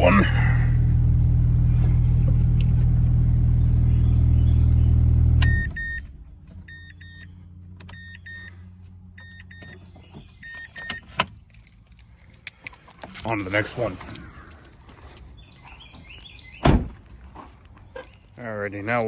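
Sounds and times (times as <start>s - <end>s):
car engine idling: 0.0s - 7.8s
car warning chime beeping: 5.4s - 7.3s, 7.9s - 8.5s, 9.2s - 9.8s.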